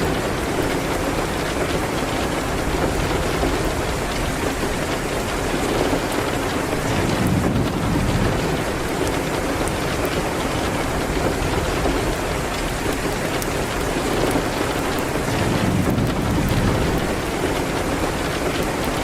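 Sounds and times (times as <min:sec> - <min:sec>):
rain hitting a window: 0:00.0 - 0:19.0
low rumble: 0:06.8 - 0:08.9, 0:15.3 - 0:17.4.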